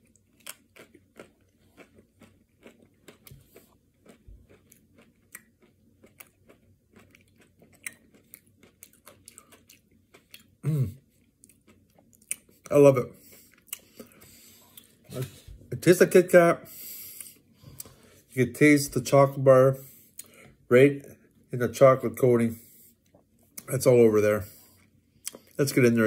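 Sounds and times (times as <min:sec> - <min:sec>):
crisp chewing crunches: 0:00.0 - 0:12.6.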